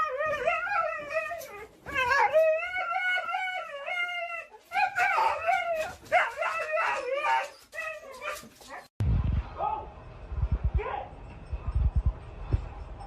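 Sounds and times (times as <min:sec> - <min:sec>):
dog howling and whining: 0:00.0 - 0:08.9.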